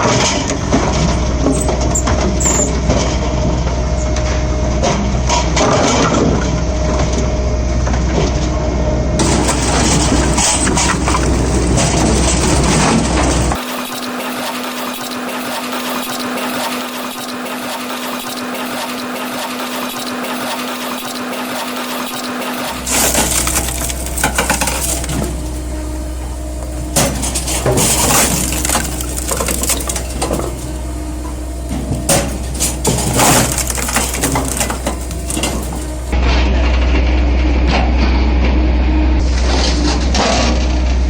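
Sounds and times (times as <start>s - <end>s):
firewood processor rasping: 0.0s - 4.4s, 9.2s - 36.2s
low machine hum: 0.0s - 41.0s
wood cracking and crunching: 9.2s - 15.0s, 22.0s - 36.2s.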